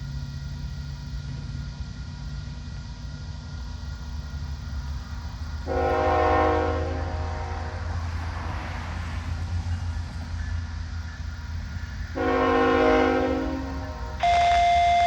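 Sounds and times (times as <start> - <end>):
diesel locomotive rumbling: 0.0 - 15.0
train air horn blast: 5.6 - 8.0, 12.2 - 15.0.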